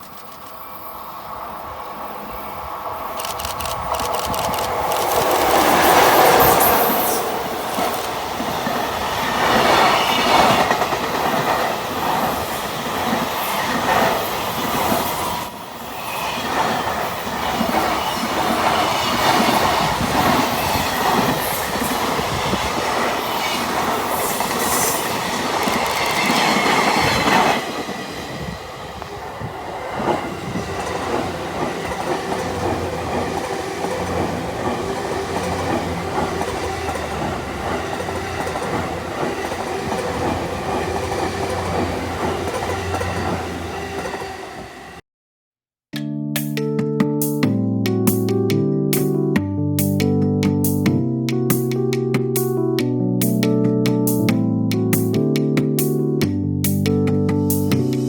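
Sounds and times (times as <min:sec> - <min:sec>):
freight train wheels on rail: 0:00.0 - 0:45.0
clickety-clack over rail joints: 0:03.2 - 0:15.3, 0:16.6 - 0:44.4.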